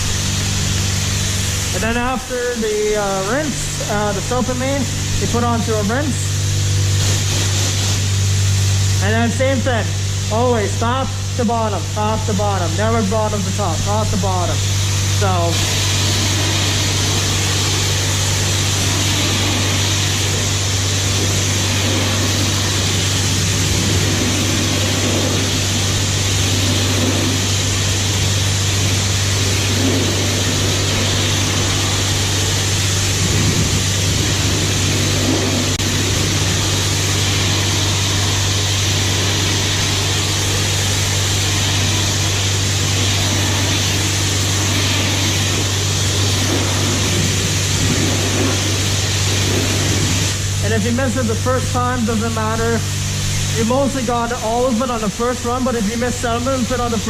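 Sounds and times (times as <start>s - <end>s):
constant low hum: 0.0s - 57.0s
hiss of water spray: 6.3s - 9.0s, 14.1s - 50.6s.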